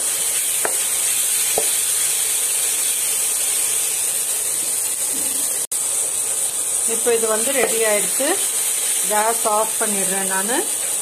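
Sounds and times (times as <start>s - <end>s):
spatula tap: 0.0s - 0.8s, 1.5s - 1.8s
masala sizzling in pan: 0.0s - 11.0s.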